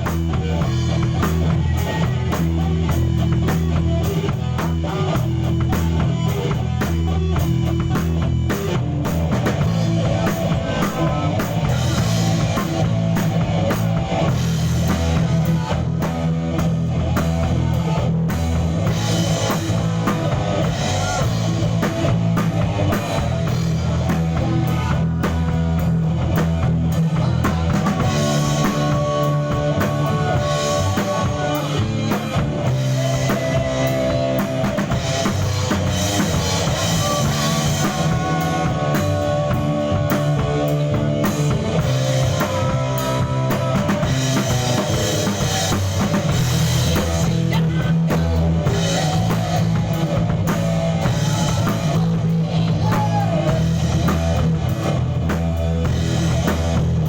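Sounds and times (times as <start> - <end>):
bass guitar: 0.0 - 57.0
drum kit: 0.0 - 57.0
electric guitar: 0.0 - 57.0.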